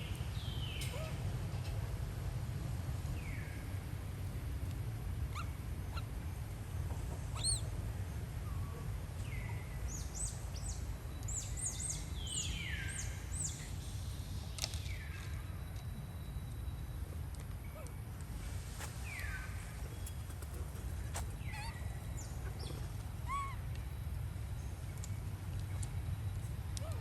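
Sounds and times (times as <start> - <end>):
birds whistling: 7.3 - 7.7, 18.8 - 23.9
birds chirping: 18.6 - 26.6.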